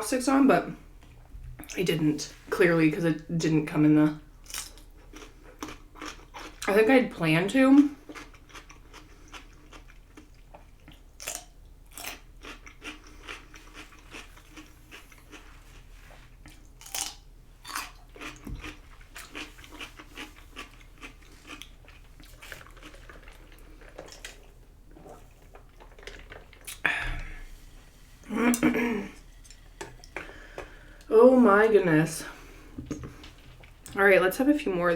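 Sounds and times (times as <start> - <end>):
person chewing food: 4.4 - 6.7, 8.0 - 27.9.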